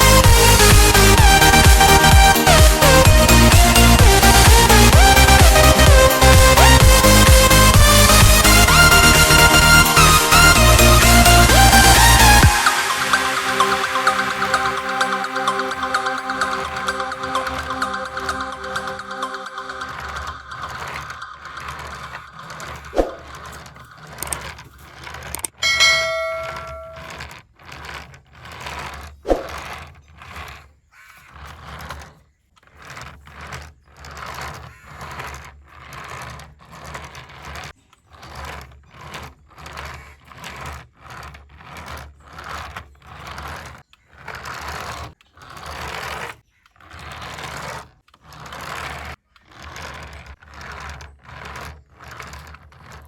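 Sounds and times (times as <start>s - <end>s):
toy car motor whirring: 0.0s - 53.0s
electronic chime: 10.2s - 21.7s, 25.6s - 27.0s.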